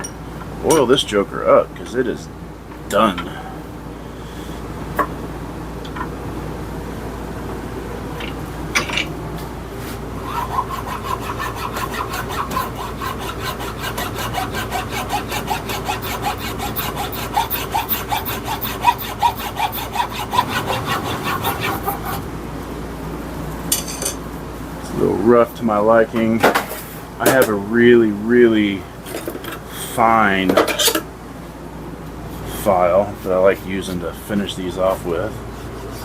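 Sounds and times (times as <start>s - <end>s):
hand file rasping on wood: 10.2s - 22.2s, 35.5s - 36.0s.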